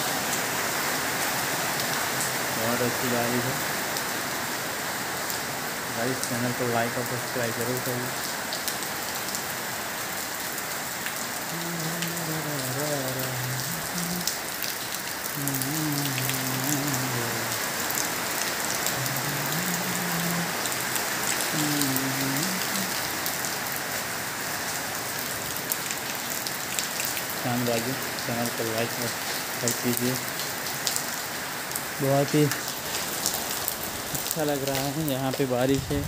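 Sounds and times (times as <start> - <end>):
heavy rain hiss: 0.0 - 36.0
faint low voice: 11.5 - 14.3, 15.4 - 17.5, 21.6 - 22.9.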